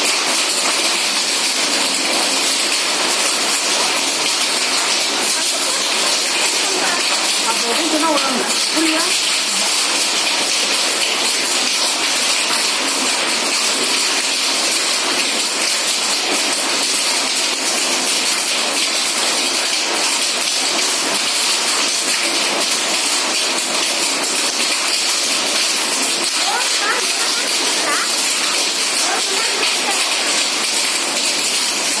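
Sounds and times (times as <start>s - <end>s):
heavy rain hiss: 0.0s - 14.3s, 24.1s - 32.0s
hailstones ticking: 0.0s - 32.0s.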